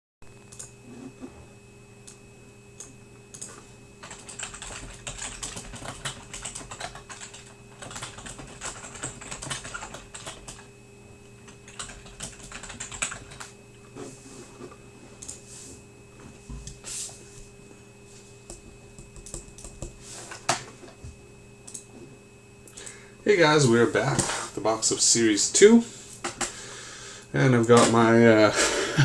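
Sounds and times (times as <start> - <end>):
faint electrical hum: 0.3 - 29.0
typing on a keyboard: 2.8 - 10.7, 11.5 - 13.5, 19.1 - 19.9.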